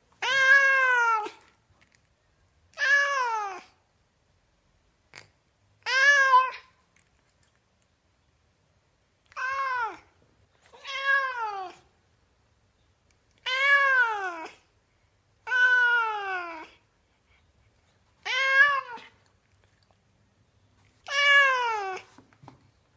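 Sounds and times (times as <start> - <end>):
cat meowing: 0.2 - 1.4, 2.7 - 3.8, 5.8 - 6.8, 9.3 - 11.9, 13.4 - 14.6, 15.4 - 16.8, 18.2 - 19.2, 21.0 - 22.2.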